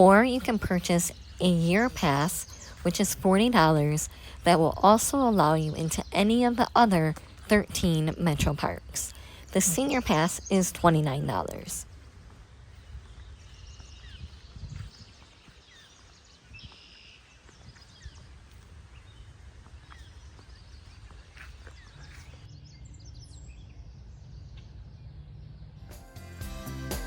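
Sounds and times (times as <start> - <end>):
steady low hum: 0.0 - 15.2
birds chirping: 0.0 - 25.9.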